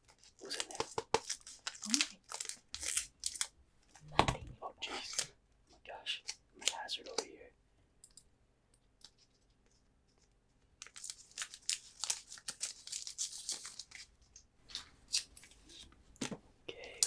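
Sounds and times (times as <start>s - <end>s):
foil wrapper tearing and crinkling: 0.2s - 3.5s, 10.8s - 14.1s.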